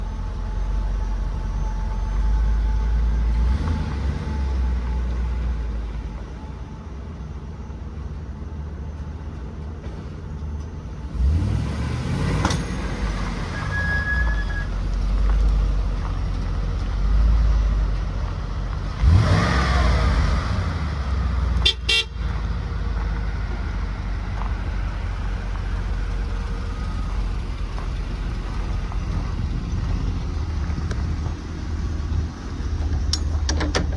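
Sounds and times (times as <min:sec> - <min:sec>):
truck engine idling and revving: 0:00.0 - 0:33.9
truck horn toot: 0:13.5 - 0:14.7, 0:21.6 - 0:22.3.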